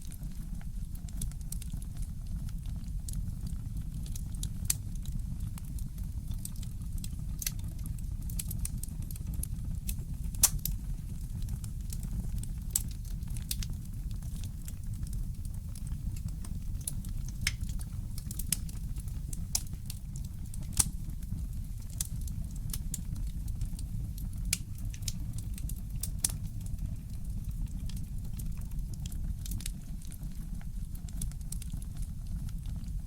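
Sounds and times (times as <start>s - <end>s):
fireplace crackling: 8.3s - 32.8s.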